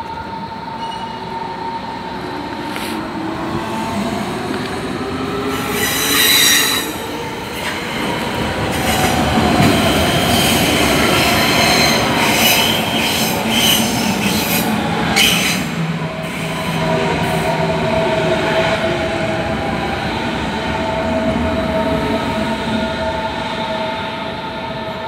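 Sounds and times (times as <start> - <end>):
train rolling rumble: 0.0 - 24.9
train wheel squeal: 0.7 - 1.5, 5.5 - 7.8, 8.7 - 17.5.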